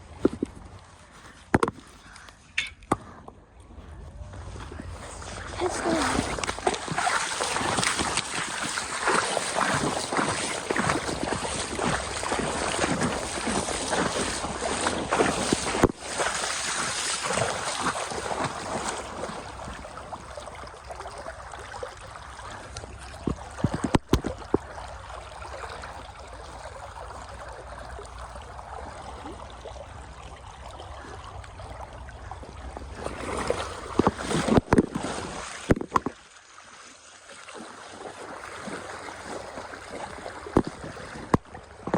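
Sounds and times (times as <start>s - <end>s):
splashing in shallow water: 0.0s - 41.9s
river current rushing: 4.9s - 19.6s.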